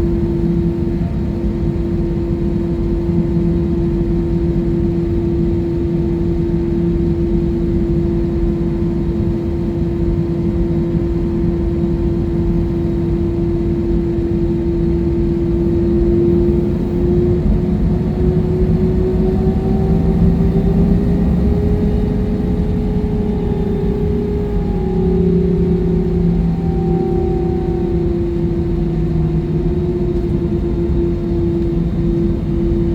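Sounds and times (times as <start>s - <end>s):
jet engines rumbling in cabin: 0.0s - 32.9s
higher engine tone: 12.4s - 32.9s.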